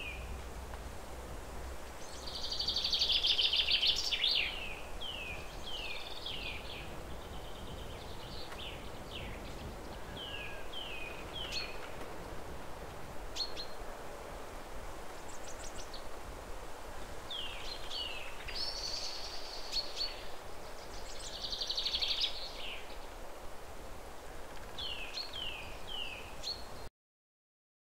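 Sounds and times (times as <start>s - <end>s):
steady background hiss: 0.0s - 26.9s
small birds chirping: 1.9s - 12.1s, 13.4s - 13.8s, 17.0s - 23.2s, 24.4s - 26.9s.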